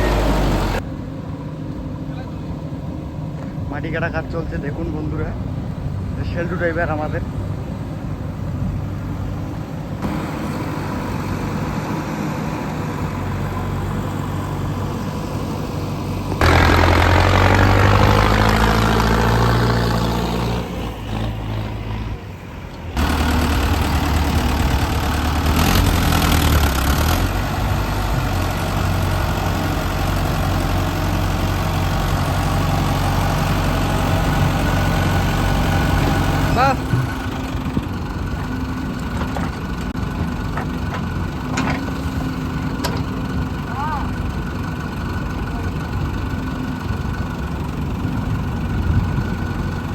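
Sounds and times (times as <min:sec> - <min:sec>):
heavy diesel engine revving: 0:00.0 - 0:00.8, 0:10.0 - 0:22.2, 0:23.0 - 0:40.0.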